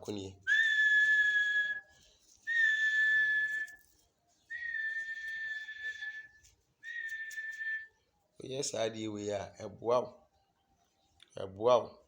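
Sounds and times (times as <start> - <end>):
high whistled notes: 0.5 - 8.0.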